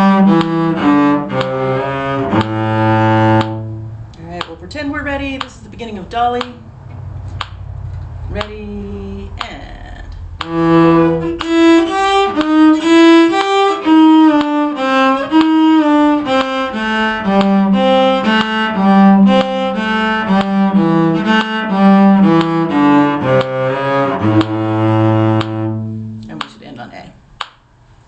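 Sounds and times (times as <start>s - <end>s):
fiddle melody: 0.0s - 4.2s, 10.4s - 26.5s.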